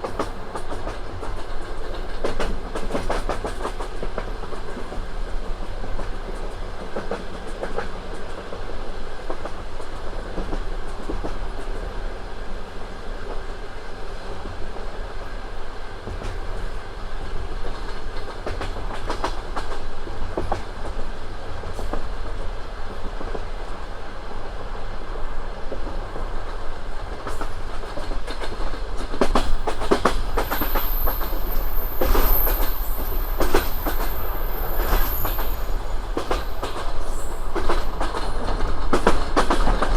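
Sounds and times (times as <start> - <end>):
train carriage rumble: 0.0 - 39.9
wheels clacking over rail joints: 27.2 - 39.9
high steady brake squeal: 29.5 - 38.0.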